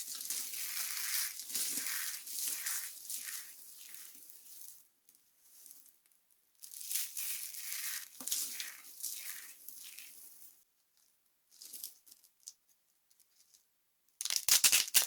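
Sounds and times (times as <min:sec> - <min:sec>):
dry soap crunching: 0:00.0 - 0:04.8, 0:06.6 - 0:10.4.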